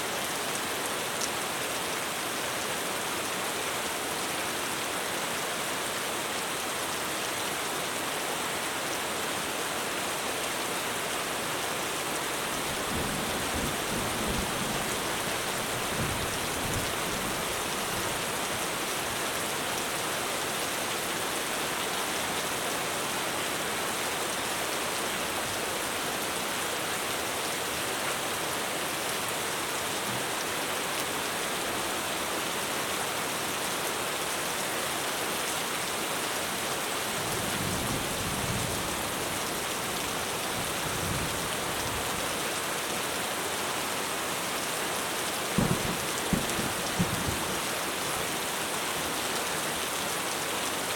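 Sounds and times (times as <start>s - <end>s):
heavy rain drumming on a roof: 0.0s - 50.9s
distant thunder rumbles: 45.6s - 47.6s.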